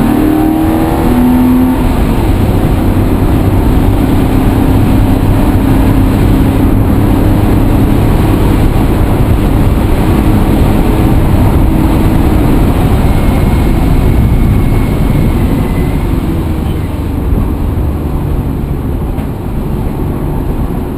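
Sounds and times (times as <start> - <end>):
vehicle engine droning: 0.0 - 20.9
low humming tone: 1.6 - 20.9.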